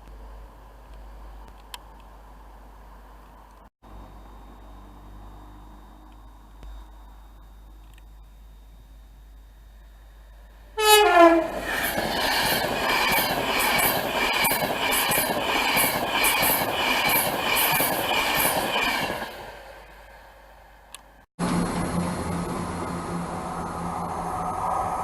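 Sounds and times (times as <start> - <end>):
train horn blast: 10.8 - 11.6
train wheels clacking on rails: 10.8 - 20.0.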